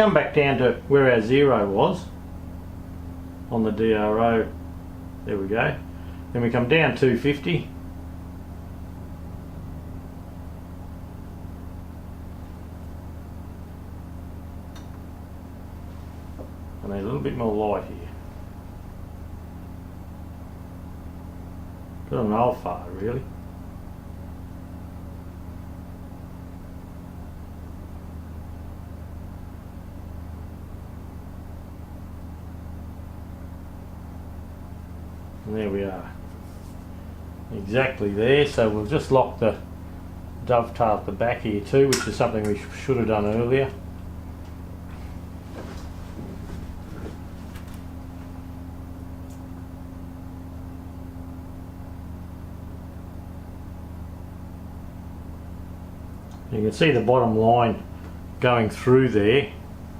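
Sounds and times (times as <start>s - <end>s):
low electric motor hum: 0.0s - 59.9s
faint click: 14.7s - 15.0s.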